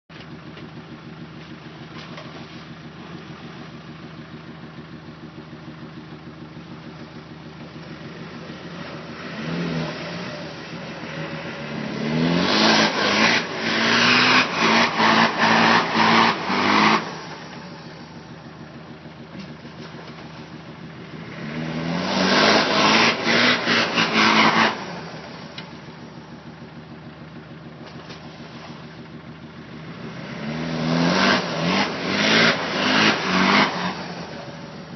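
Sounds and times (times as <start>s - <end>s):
diesel engine revving: 0.2s - 34.9s.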